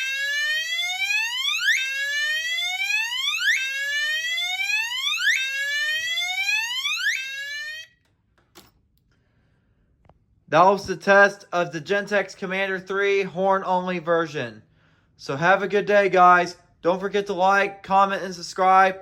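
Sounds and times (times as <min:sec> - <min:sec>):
fire alarm horn whooping: 0:00.0 - 0:08.0.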